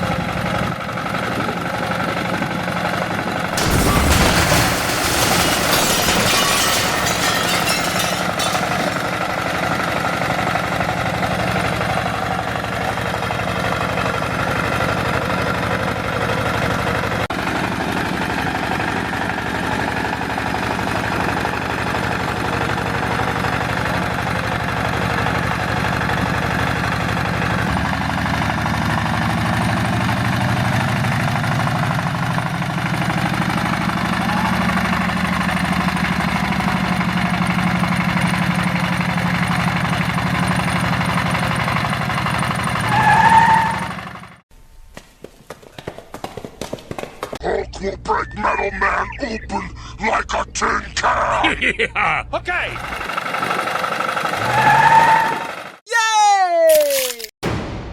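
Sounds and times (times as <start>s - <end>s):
small tractor engine running: 0.0s - 3.6s, 9.1s - 44.4s, 52.8s - 55.8s.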